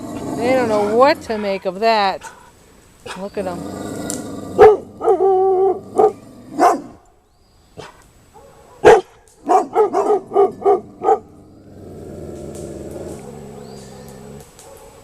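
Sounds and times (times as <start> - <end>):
dogs barking: 4.6 - 7.0, 7.8 - 11.4, 14.4 - 15.0.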